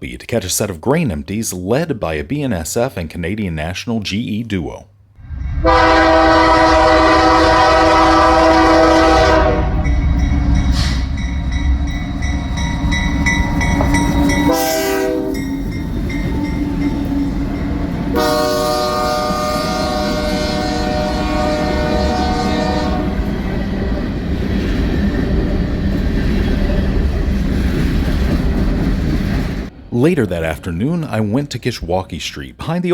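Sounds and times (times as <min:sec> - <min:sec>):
train rumbling: 0:05.2 - 0:32.8
train air horn: 0:05.6 - 0:09.9, 0:14.4 - 0:15.6, 0:18.1 - 0:23.3.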